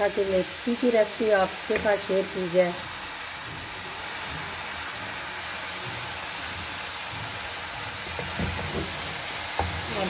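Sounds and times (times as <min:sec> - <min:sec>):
leaves sizzling in a pan: 0:00.0 - 0:10.0
wooden spatula scraping a pan: 0:03.6 - 0:10.0.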